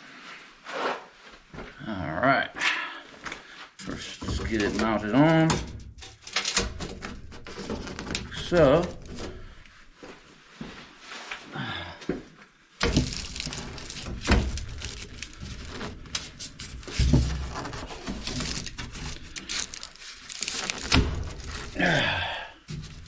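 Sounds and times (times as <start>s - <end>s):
scraping and rattling: 3.8s - 9.6s, 12.8s - 23.0s.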